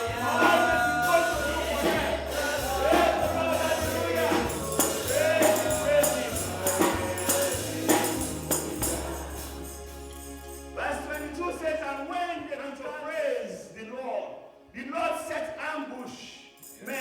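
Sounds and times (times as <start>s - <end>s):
people singing: 0.0s - 11.8s
bass line: 0.0s - 12.1s
percussion: 0.0s - 12.1s, 16.5s - 17.0s.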